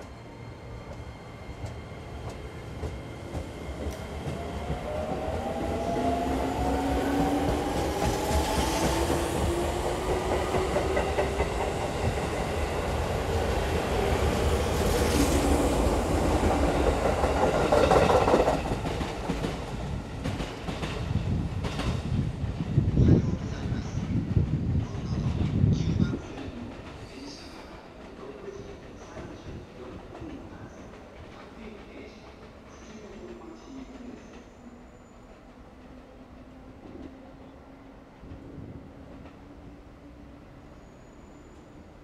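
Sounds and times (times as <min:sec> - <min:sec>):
low train rumble: 0:00.0 - 0:42.0.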